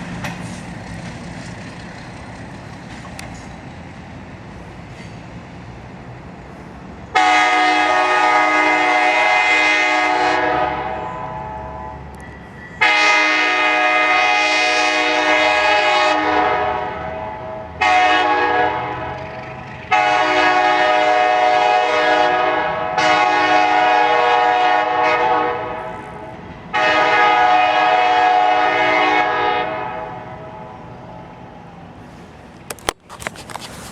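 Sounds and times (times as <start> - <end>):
locomotive air horn blasts: 7.1 - 12.1, 12.8 - 19.2, 19.9 - 30.8.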